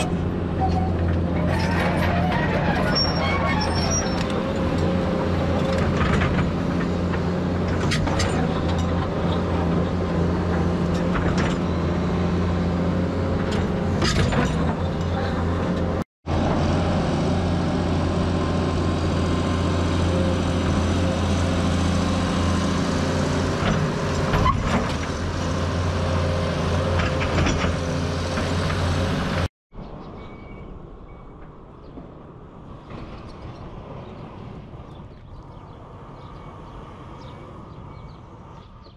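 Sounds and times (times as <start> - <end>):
diesel excavator engine running: 0.0 - 29.5
metallic clanks from digging: 7.7 - 9.7.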